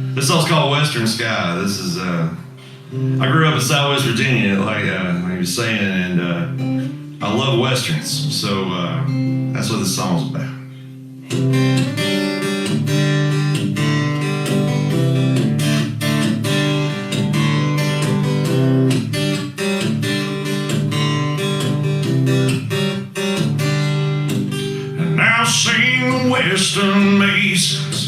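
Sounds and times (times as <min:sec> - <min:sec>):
acoustic guitar strumming chords: 0:00.0 - 0:28.0
man singing: 0:03.2 - 0:06.6, 0:07.2 - 0:09.1, 0:24.9 - 0:28.0.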